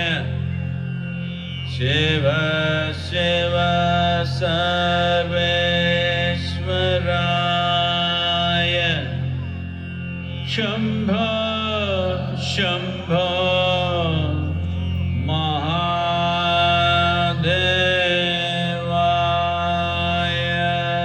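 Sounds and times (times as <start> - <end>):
person singing long notes: 0.0 - 21.0
steady low drone: 0.0 - 21.0.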